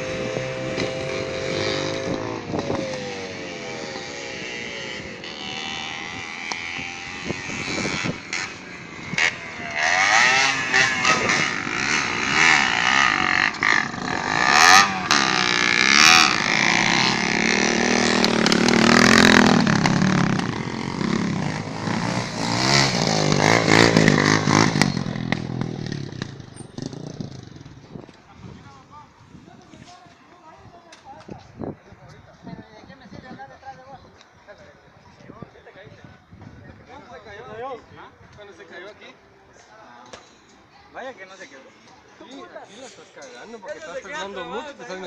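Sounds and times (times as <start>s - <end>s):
motorcycle engines revving: 0.0s - 32.5s.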